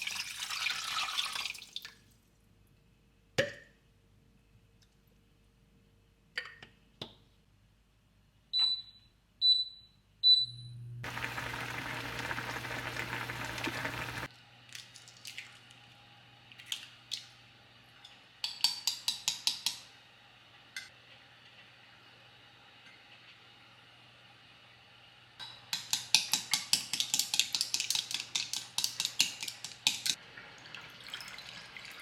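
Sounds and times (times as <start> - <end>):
appliance low hum: 10.2 - 14.3.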